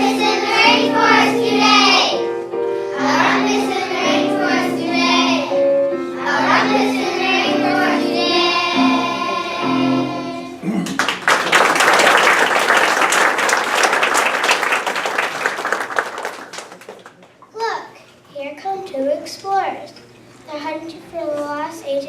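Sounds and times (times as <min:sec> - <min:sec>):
children's choir singing: 0:00.0 - 0:10.6
audience applause: 0:10.8 - 0:17.4.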